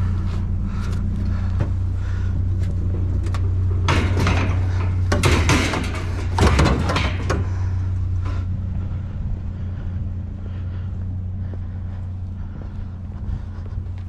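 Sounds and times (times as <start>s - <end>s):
vehicle engine idling: 0.0s - 14.0s
clattering knocks: 2.5s - 8.0s.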